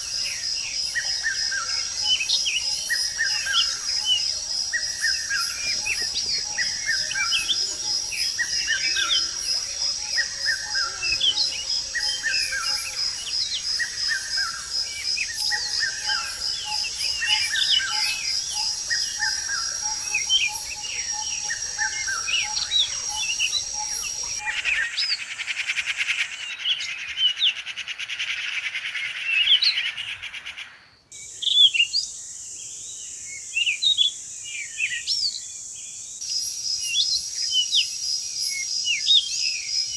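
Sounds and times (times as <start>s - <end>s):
pulsing insect trill: 0.0s - 25.0s
birds chirping and calling: 0.0s - 30.8s.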